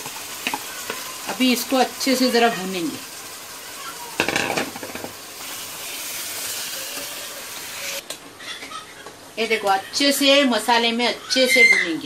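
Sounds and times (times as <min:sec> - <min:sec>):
chicken sizzling in oil: 0:00.0 - 0:08.0.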